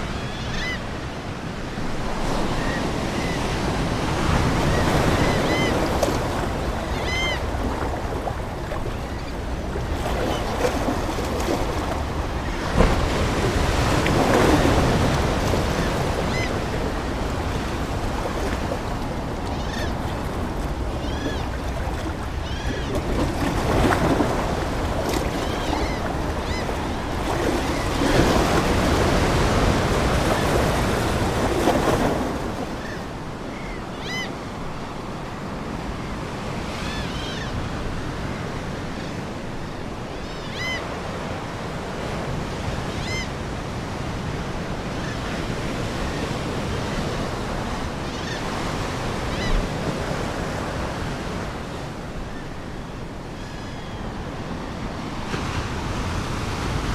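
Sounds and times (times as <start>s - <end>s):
seagulls calling: 0.0s - 0.9s, 2.4s - 34.4s
ocean waves washing ashore: 0.0s - 56.9s.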